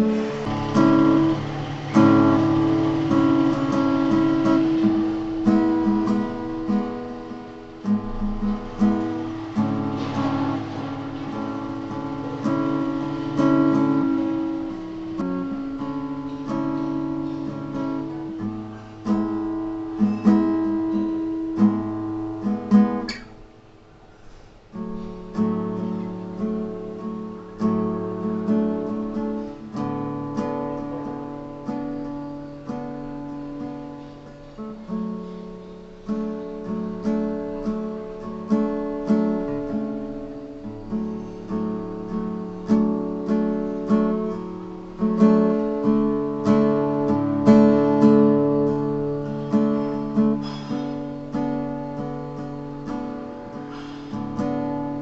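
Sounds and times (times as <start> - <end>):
acoustic guitar chords: 0.0 - 55.0.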